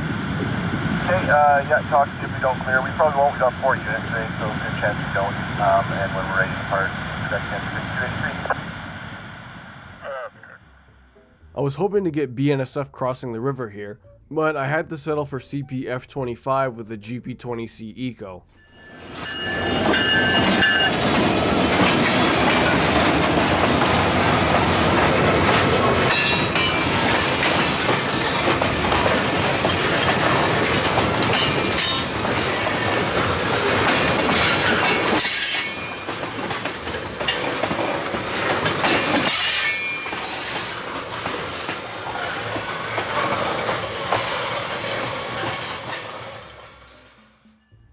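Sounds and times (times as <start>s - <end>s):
high thin wheel squeals: 18.6s - 21.0s, 34.2s - 36.2s, 39.2s - 40.6s
train wheels clattering on rails: 18.9s - 47.0s.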